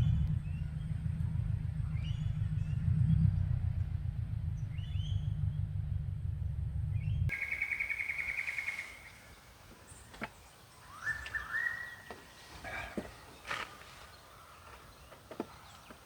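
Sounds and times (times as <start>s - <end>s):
heavy pulsing low rumble: 0.0s - 7.6s
faint bird chirps: 7.0s - 16.0s
rainforest birds calling: 7.3s - 16.0s.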